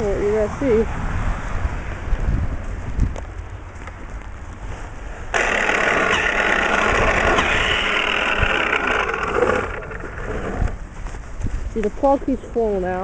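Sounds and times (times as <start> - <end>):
electric snow thrower motor: 5.3 - 10.8.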